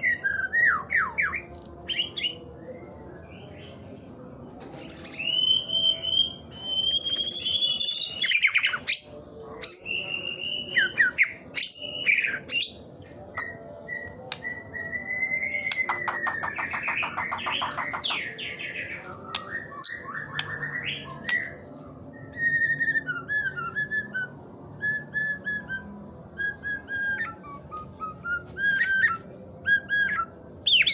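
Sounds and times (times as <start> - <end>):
bird singing whistled phrases: 5.1 - 12.8, 13.4 - 21.6, 22.2 - 30.9.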